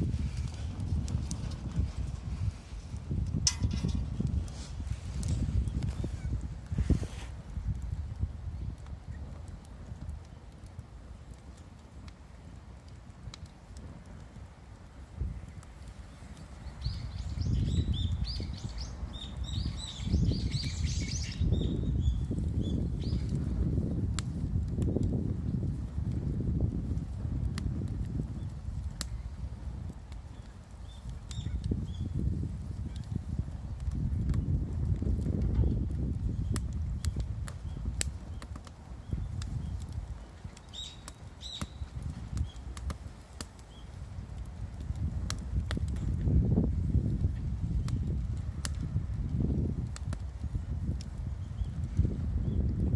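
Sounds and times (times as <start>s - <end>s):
bonfire crackling and popping: 0.0s - 52.9s
small birds chirping: 16.3s - 23.3s, 40.6s - 42.6s, 43.7s - 44.0s.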